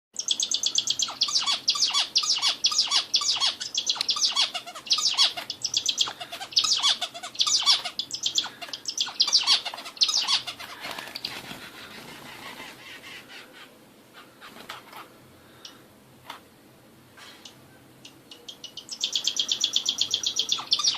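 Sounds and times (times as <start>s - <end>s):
songbird singing: 0.2s - 11.4s, 17.4s - 20.9s.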